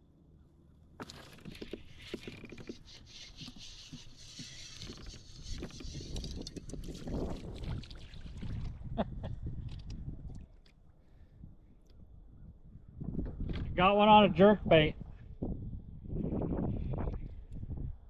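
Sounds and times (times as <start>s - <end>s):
water splashing around kayak: 1.0s - 10.8s.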